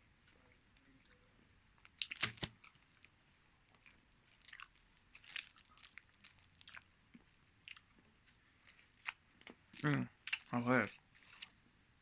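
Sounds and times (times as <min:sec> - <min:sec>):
hard candy crunching: 0:01.8 - 0:07.9, 0:08.6 - 0:11.5
chewing with cracking clicks: 0:01.8 - 0:11.6.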